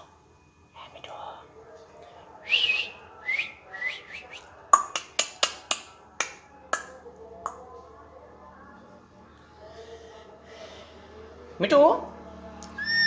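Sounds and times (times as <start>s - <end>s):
parrot clicks: 4.8s - 6.9s
parrot whistling: 12.8s - 13.0s.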